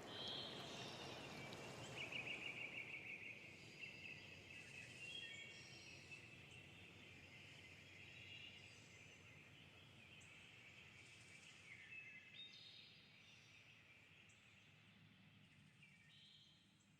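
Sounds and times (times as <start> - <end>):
faint river stream: 0.0 - 4.5.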